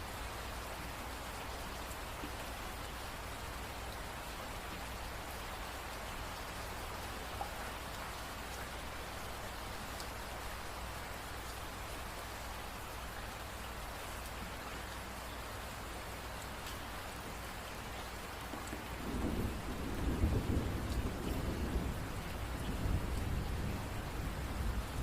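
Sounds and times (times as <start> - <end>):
steady rain hissing: 0.0 - 25.0
low rumble of thunder: 18.7 - 25.0.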